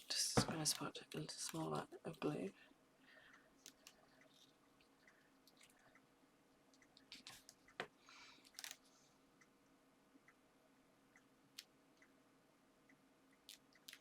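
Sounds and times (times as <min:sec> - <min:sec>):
small paper clicks: 0:08.4 - 0:08.9.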